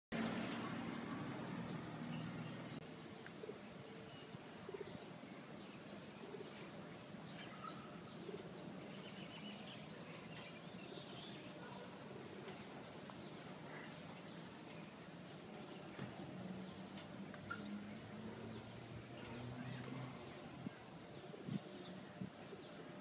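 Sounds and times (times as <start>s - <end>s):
birds chirping: 0.2s - 23.0s
pigeons cooing: 3.3s - 5.1s, 7.4s - 8.9s.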